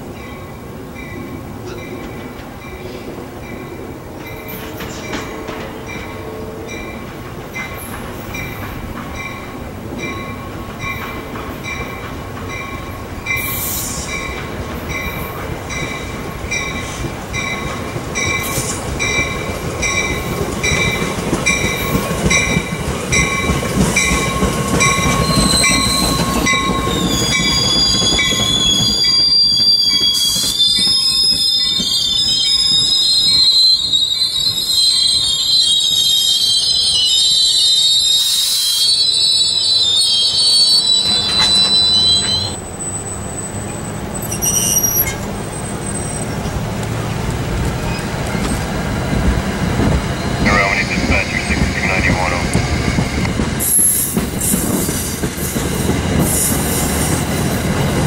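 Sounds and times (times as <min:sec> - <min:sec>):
crossing bell ringing: 0:00.0 - 0:28.6
train rumble: 0:00.0 - 0:36.2, 0:39.1 - 0:58.0
train wheel squeal: 0:07.6 - 0:46.6, 0:47.8 - 0:52.0, 0:53.1 - 0:58.0.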